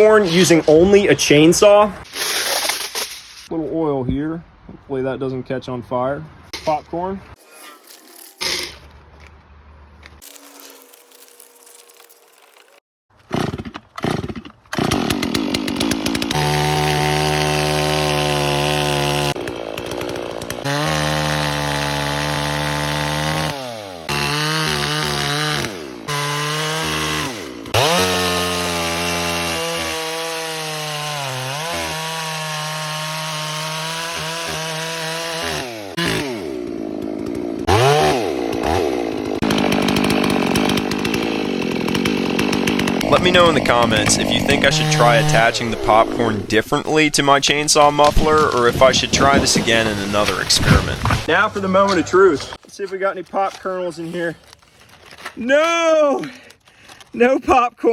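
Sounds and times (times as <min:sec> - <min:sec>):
chainsaw engine revving: 0:13.2 - 0:52.6.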